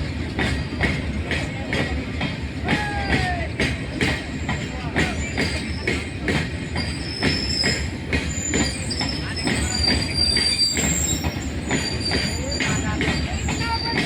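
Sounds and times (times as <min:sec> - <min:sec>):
high-pitched wheel squeal: 0:05.2 - 0:14.0.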